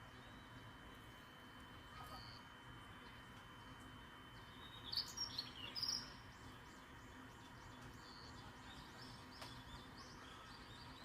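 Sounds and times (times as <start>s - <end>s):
small bird chirping: 4.3s - 11.0s.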